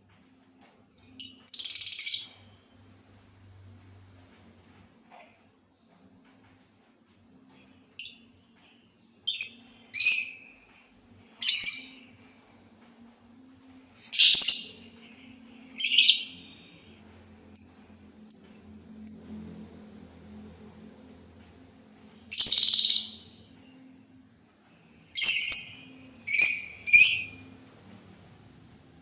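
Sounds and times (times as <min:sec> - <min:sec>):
faint high whine: 0:00.0 - 0:29.0
songbird sharp calls: 0:11.4 - 0:12.2, 0:14.2 - 0:15.0, 0:15.8 - 0:16.6, 0:22.3 - 0:23.4, 0:25.2 - 0:27.5.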